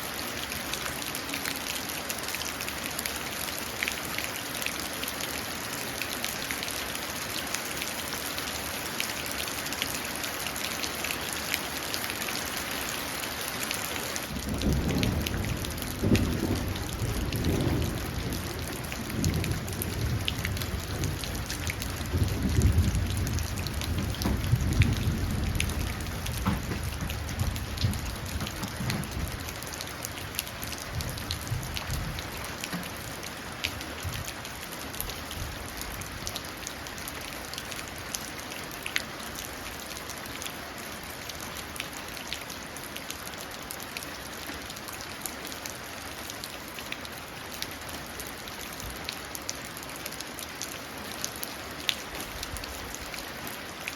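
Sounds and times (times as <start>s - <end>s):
rain splashing into puddle: 0.0s - 53.9s
low rumble of thunder: 14.3s - 32.5s.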